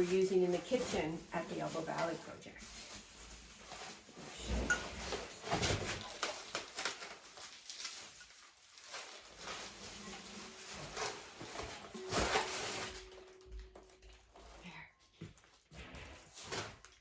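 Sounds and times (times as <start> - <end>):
packaging rustling and clicking: 4.8 - 14.6.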